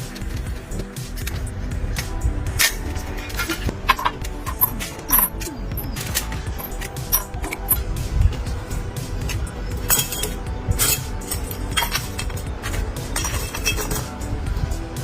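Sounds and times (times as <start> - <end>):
background music: 0.0 - 15.0
metal clinking and tapping: 2.5 - 7.9, 9.2 - 14.2.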